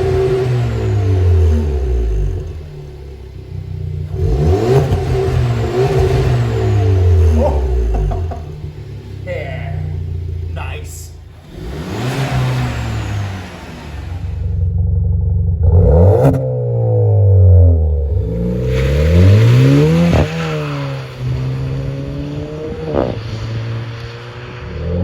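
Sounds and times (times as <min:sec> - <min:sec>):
car engine revving: 0:00.0 - 0:25.0
exhaust cracks: 0:00.0 - 0:25.0.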